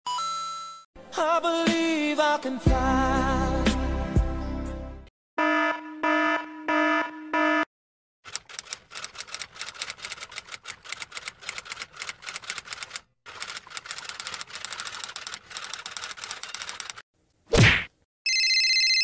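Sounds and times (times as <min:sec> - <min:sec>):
alarm clock beeping: 0:05.4 - 0:07.7
typewriter keys clacking: 0:08.3 - 0:17.0.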